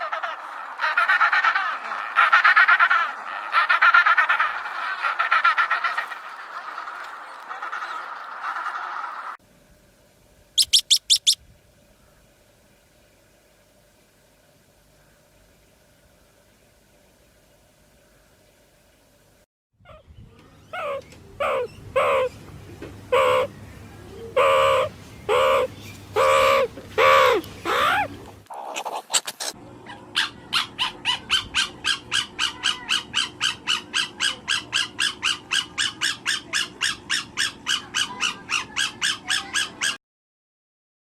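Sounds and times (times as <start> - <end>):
fast run of bird calls: 0.0 - 9.4, 10.6 - 11.4
harsh bird calls: 0.0 - 9.4, 10.6 - 11.4, 23.1 - 28.2.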